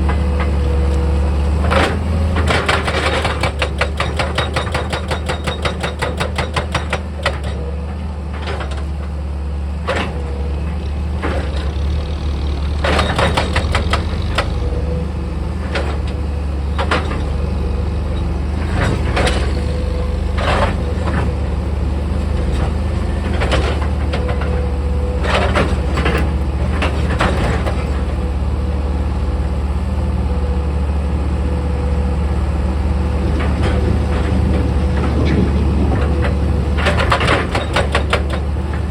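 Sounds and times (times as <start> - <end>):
heavy diesel engine running: 0.0 - 38.9
clanks of steel and rock: 33.4 - 38.9.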